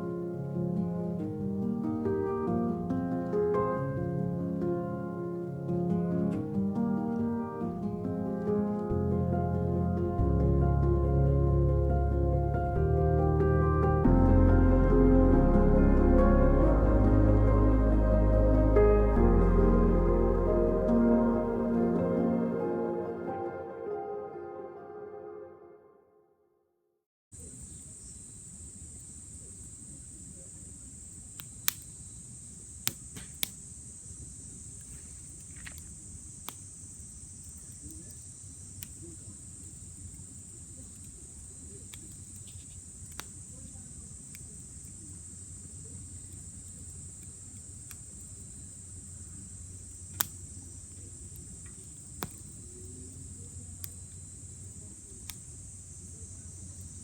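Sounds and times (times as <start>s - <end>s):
night insects chorus: 27.4s - 57.0s
campfire crackling: 30.7s - 33.8s, 34.5s - 57.0s
fire pops: 32.7s - 33.6s, 37.6s - 45.0s, 49.9s - 53.1s.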